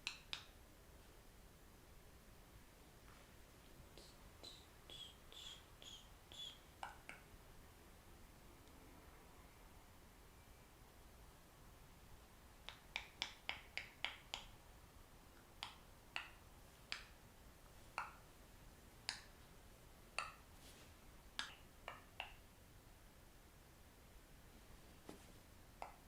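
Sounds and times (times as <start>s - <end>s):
sharp snapping clicks: 0.0s - 0.6s, 15.4s - 17.2s.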